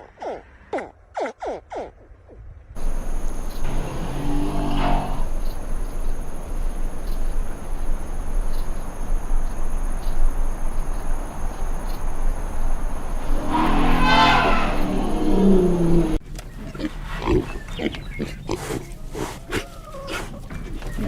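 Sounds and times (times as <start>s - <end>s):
crickets chirping: 2.8s - 16.2s
deep animal call: 2.8s - 16.2s
low background hum: 2.8s - 16.8s.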